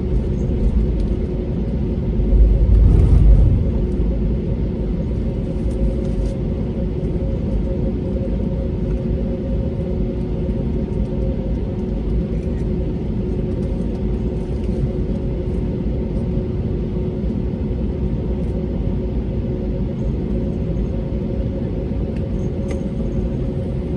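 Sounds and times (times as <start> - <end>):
airplane cabin rumble: 0.0 - 8.9, 21.4 - 23.9
jet engine humming tones: 0.3 - 6.1.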